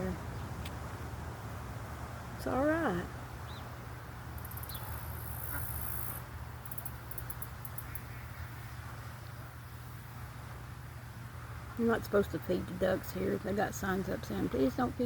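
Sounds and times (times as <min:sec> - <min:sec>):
insect buzzing trill: 0:04.4 - 0:08.0.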